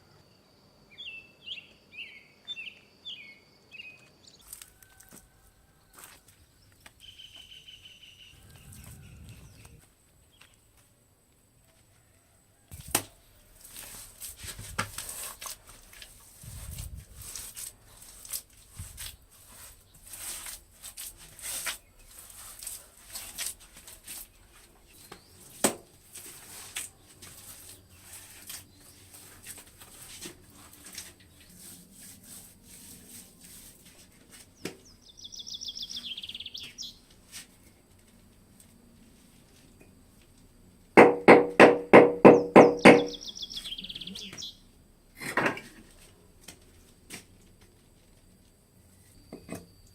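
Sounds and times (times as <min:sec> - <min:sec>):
rustling swishing and snapping: 0:12.7 - 0:31.2
sharp knocks: 0:41.0 - 0:43.2
bird trill: 0:42.3 - 0:44.6.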